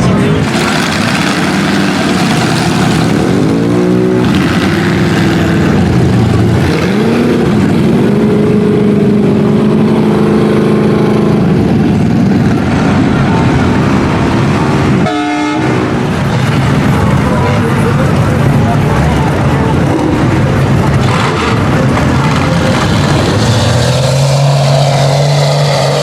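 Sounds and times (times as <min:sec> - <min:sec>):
steady rushing noise: 0:00.0 - 0:26.0
truck engine revving hard: 0:00.0 - 0:26.0.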